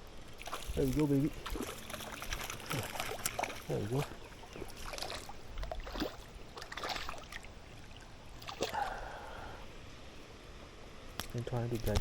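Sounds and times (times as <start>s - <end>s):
river flowing: 0.0s - 11.1s
water splashing: 0.3s - 9.6s.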